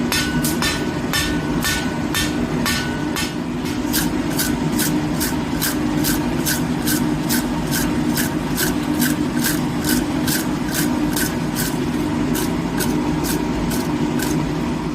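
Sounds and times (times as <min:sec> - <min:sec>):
hammer strokes on anvil: 0:00.0 - 0:07.0
low mechanical hum: 0:00.0 - 0:14.9.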